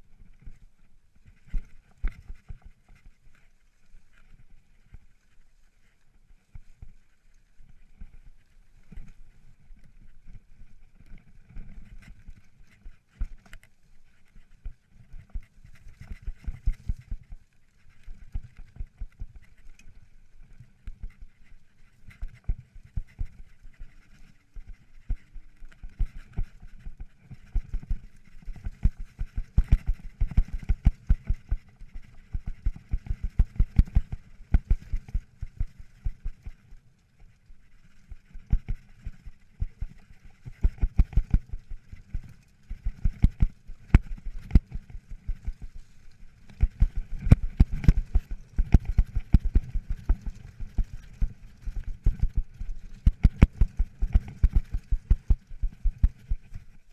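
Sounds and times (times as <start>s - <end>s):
faint steady hiss: 0.0s - 56.9s
mountain bike rattling over rocks: 21.1s - 36.6s, 37.8s - 56.8s.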